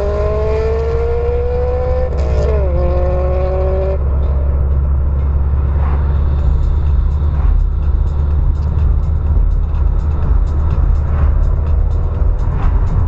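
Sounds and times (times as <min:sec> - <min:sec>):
car engine accelerating: 0:00.0 - 0:13.0
low engine rumble: 0:00.0 - 0:13.0.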